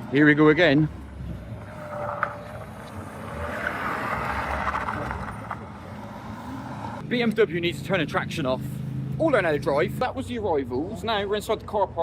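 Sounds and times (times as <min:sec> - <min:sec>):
tyre noise: 0:00.1 - 0:07.0
car engine accelerating: 0:00.9 - 0:07.0.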